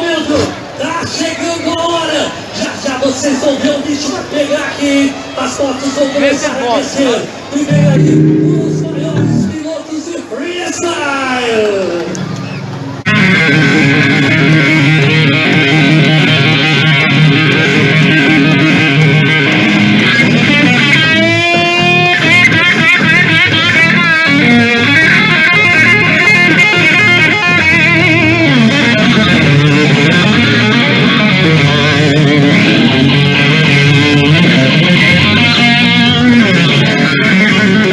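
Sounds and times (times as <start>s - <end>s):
lead guitar line bending in pitch: 7.7s - 9.6s.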